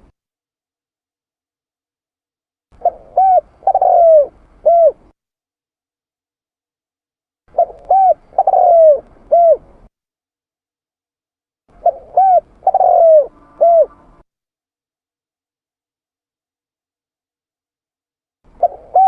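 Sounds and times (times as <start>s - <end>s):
dove cooing: 2.8s - 5.1s, 7.5s - 9.8s, 11.7s - 14.2s, 18.5s - 19.0s.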